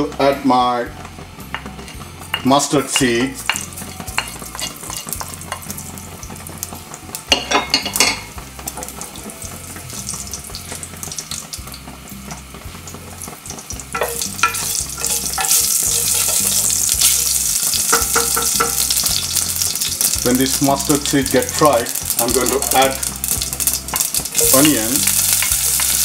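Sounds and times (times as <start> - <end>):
seeds sizzling in hot oil: 0.0 - 26.0
knocks on saucepan: 17.8 - 19.1.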